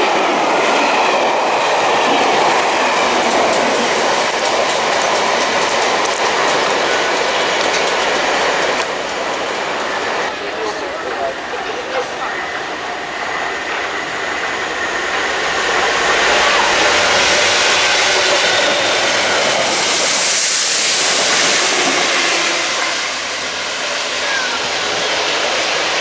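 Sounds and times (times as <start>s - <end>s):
train passing: 0.0s - 26.0s.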